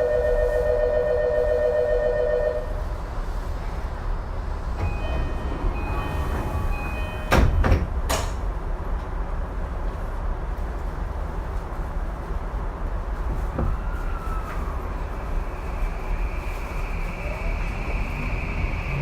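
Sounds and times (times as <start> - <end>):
low hum of train car: 0.0 - 19.0
sliding doors banging shut: 4.7 - 8.6
train chime: 4.8 - 7.7.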